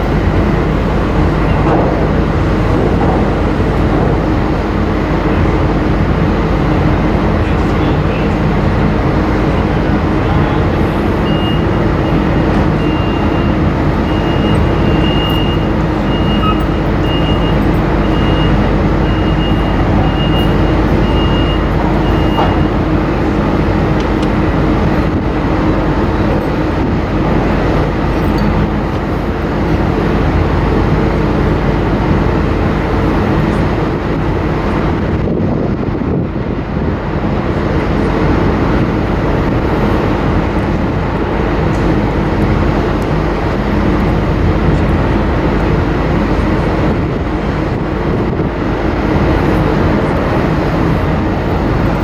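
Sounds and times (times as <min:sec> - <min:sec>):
ferry engines droning: 0:00.0 - 0:52.0
high-pitched beep: 0:12.8 - 0:22.7.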